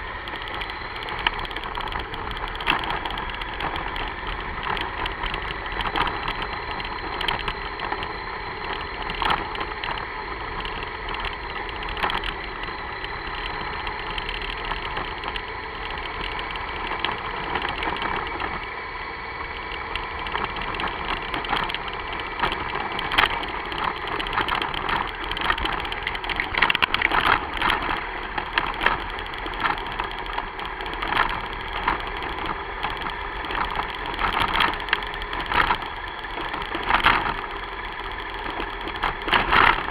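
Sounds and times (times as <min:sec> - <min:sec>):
car engine running: 0:00.0 - 0:39.9
short crackles and knocks: 0:19.6 - 0:39.9.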